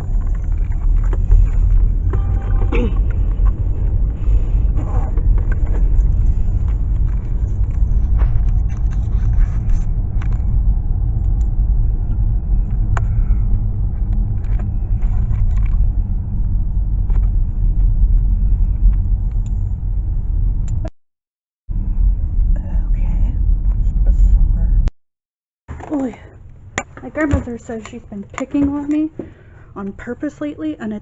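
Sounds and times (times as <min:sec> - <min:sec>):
car driving interior rumble: 0:00.0 - 0:20.9, 0:21.7 - 0:24.9.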